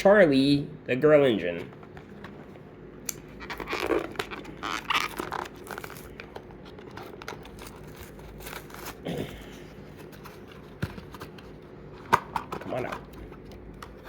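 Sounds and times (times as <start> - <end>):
packaging torn and crinkled: 3.3 - 9.2.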